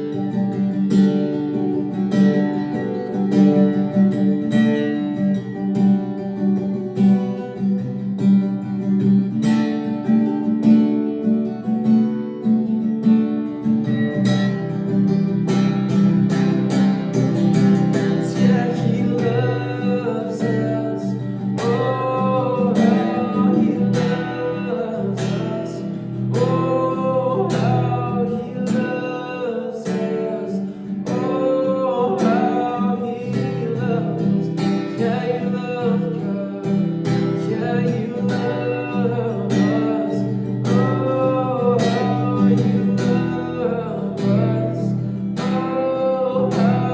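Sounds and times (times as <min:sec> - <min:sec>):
acoustic guitar strumming: 0:00.0 - 0:46.9
person singing: 0:17.7 - 0:46.9.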